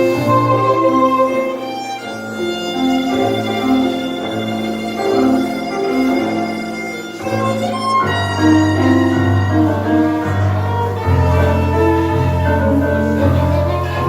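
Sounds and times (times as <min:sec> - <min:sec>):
violin melody: 0:00.0 - 0:14.0
bass notes: 0:07.3 - 0:14.0.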